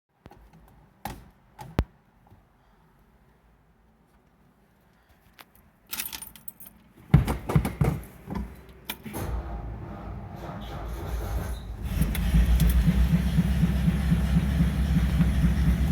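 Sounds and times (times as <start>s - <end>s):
keys jingling: 5.9s - 6.9s
car engine cranking and starting: 9.0s - 15.9s.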